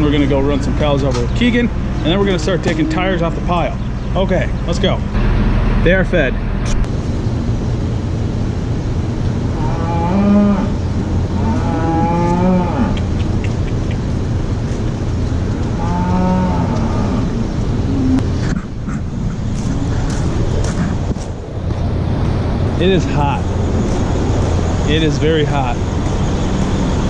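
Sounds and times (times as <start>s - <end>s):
steady low hum: 0.0s - 27.0s
calves bawling: 1.8s - 5.2s, 9.6s - 21.7s.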